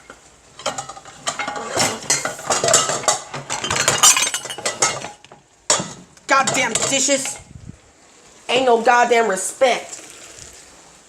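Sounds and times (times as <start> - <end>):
pots and pans clanking: 0.0 - 7.5.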